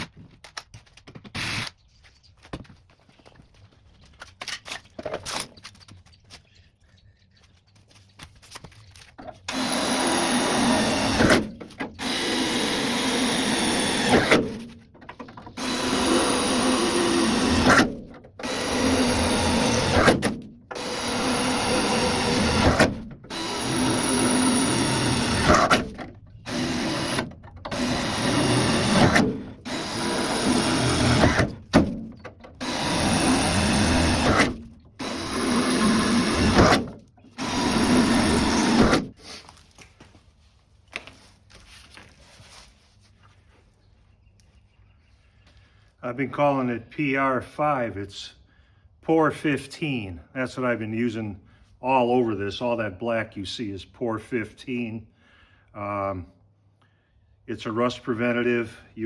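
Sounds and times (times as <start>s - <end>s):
electric power tool running: 9.5s - 14.6s, 15.5s - 31.9s, 32.6s - 39.1s.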